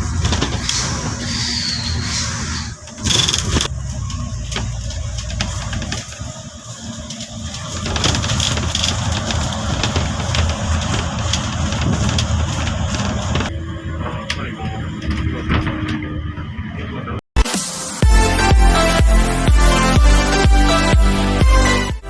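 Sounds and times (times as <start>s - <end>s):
traffic engines rumbling: 0.0s - 17.2s.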